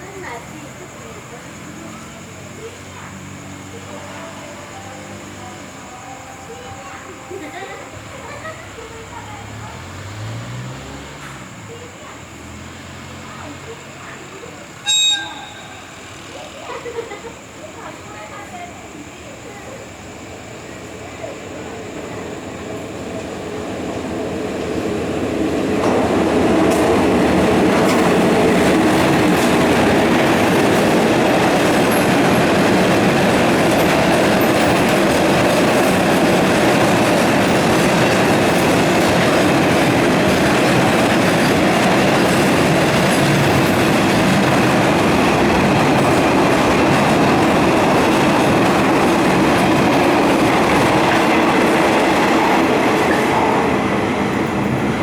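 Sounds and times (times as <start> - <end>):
freight train rumbling past: 0.0 - 55.0
wheel squeal: 14.8 - 16.7
wheels clattering over rail joints: 21.6 - 55.0.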